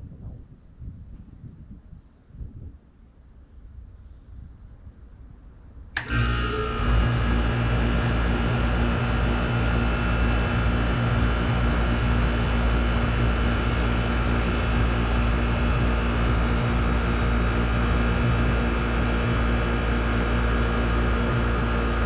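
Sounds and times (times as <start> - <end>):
compressor hum: 5.9 - 22.0
condenser fan rushing: 5.9 - 22.0.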